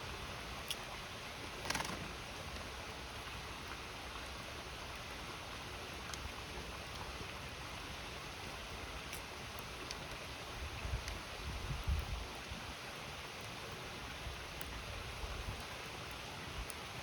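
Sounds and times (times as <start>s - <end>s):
river flowing: 0.0s - 11.5s
campfire crackling: 13.2s - 17.0s.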